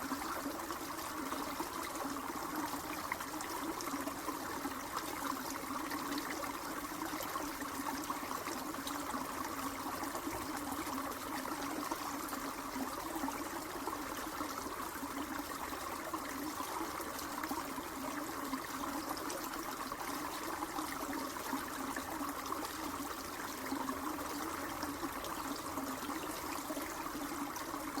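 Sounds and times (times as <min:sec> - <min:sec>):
running water trickling: 0:00.0 - 0:28.0.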